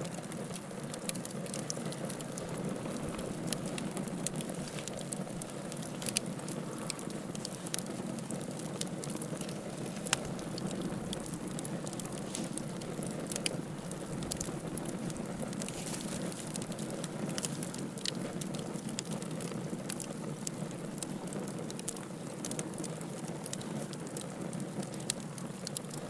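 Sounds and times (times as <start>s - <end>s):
fire crackling and popping: 0.0s - 26.0s
wood fire hissing: 0.0s - 26.0s.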